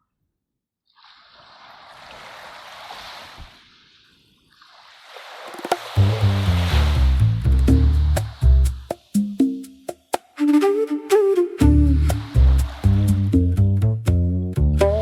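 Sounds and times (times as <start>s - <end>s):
ambient music with low bass: 6.0s - 8.8s, 11.6s - 15.0s.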